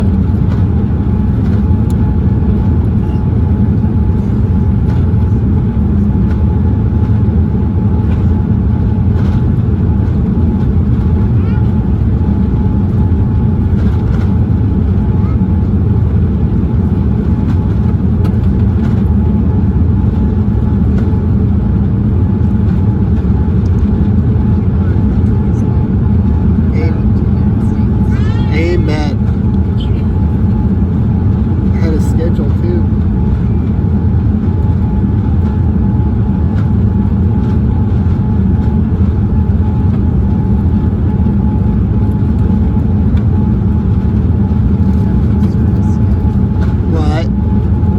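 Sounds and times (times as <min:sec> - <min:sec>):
airplane engines and airflow rumble: 0:00.0 - 0:47.9.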